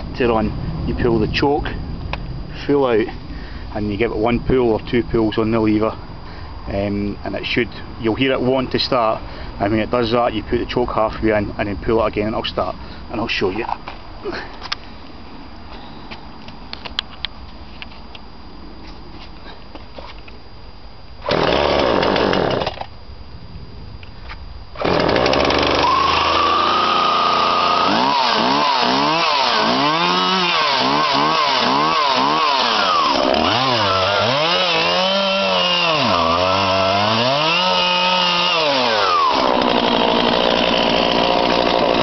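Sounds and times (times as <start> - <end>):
chainsaw starting and revving: 21.2 - 22.8, 24.8 - 42.0.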